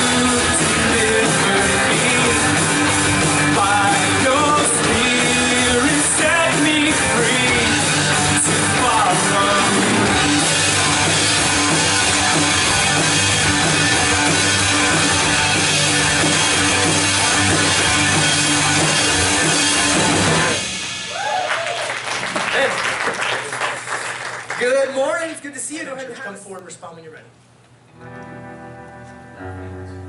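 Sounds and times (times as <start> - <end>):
electric guitars: 0.0 - 21.4, 27.9 - 30.0
live rock band playing: 0.0 - 22.2, 27.9 - 30.0
drums: 0.0 - 24.6.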